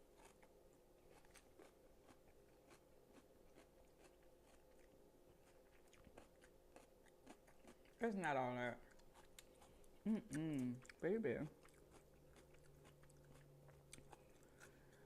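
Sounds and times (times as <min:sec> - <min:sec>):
chewing crunchy food: 0:00.0 - 0:15.0.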